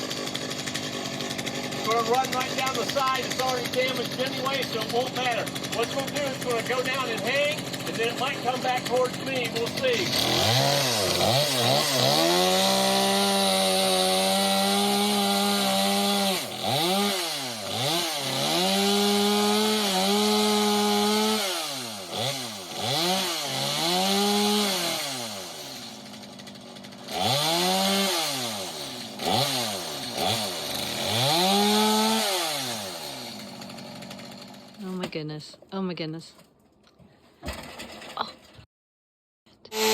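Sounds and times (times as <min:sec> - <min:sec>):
chainsaw cutting wood: 0:00.0 - 0:35.4, 0:39.7 - 0:39.9.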